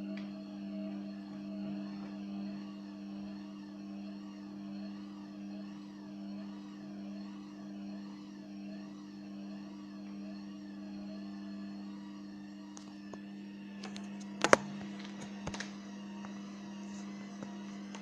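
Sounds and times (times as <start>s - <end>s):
washing machine pulsating hum: 0.0s - 18.0s.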